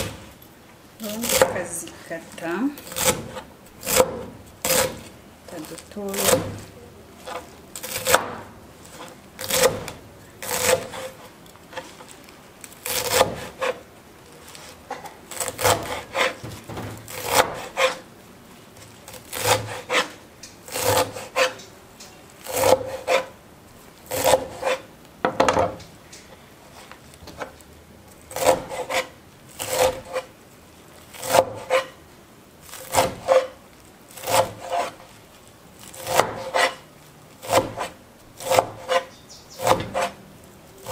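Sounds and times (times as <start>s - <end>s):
knife chopping on wooden board: 2.9s - 5.1s, 6.1s - 11.2s, 12.8s - 13.8s, 15.0s - 18.0s, 28.4s - 30.3s, 31.2s - 31.9s, 32.8s - 33.5s, 34.2s - 35.0s, 36.0s - 36.8s, 37.4s - 40.2s.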